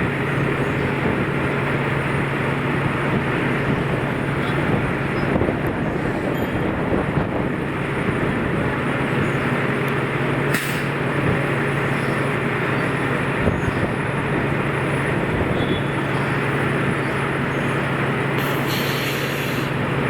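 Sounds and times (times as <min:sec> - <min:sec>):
vehicle engine and traffic hum: 0:00.0 - 0:20.0
short click: 0:10.5 - 0:10.9.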